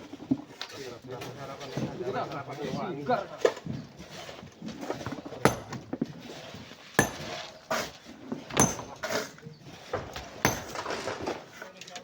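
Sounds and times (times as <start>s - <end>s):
metal tool clinking on rock: 5.5s - 5.9s, 7.0s - 7.4s, 8.6s - 9.1s, 10.5s - 10.8s.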